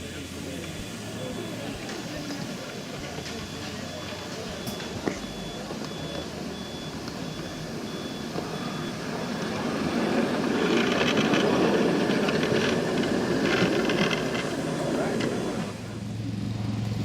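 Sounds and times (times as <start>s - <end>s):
miniature train running: 0.0s - 17.0s
faint high beep: 0.8s - 10.1s.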